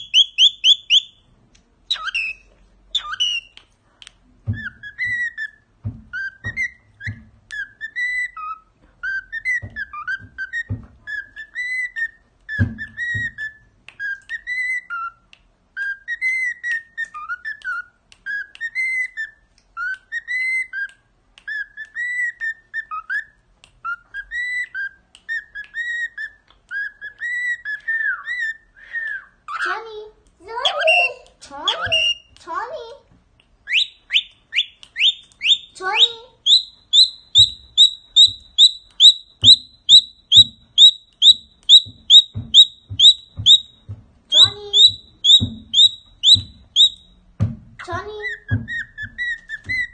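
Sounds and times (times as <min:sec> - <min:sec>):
cockatiel whistling: 0:00.0 - 0:01.2, 0:01.9 - 0:03.6, 0:04.5 - 0:29.6, 0:30.6 - 0:32.3, 0:33.6 - 0:47.2, 0:48.2 - 0:49.9
high bird chirps: 0:00.0 - 0:01.3, 0:01.9 - 0:03.6, 0:04.5 - 0:20.9, 0:21.5 - 0:29.7, 0:30.6 - 0:32.3, 0:33.6 - 0:47.2, 0:47.8 - 0:49.9
sharp knocks: 0:40.4 - 0:49.9.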